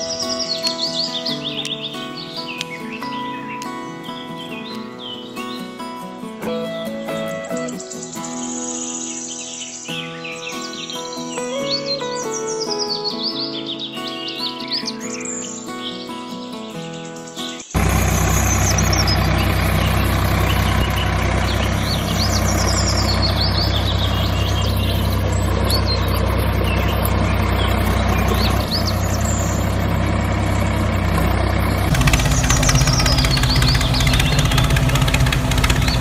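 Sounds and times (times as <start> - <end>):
birds chirping: 0.0 - 6.1, 7.5 - 36.0
tractor engine running: 17.8 - 36.0.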